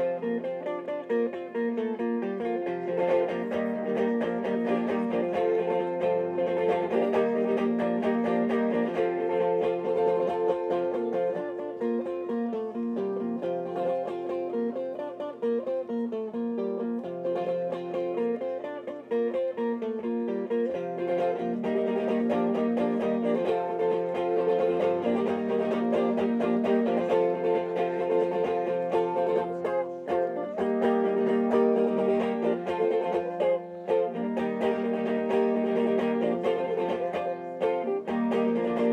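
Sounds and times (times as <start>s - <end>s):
plucked string instrumental music: 0.0s - 38.9s.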